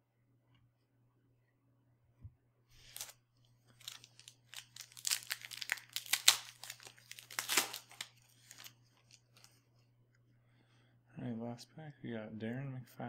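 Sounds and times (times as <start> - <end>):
foil wrapper tearing and crinkling: 2.8 - 9.5.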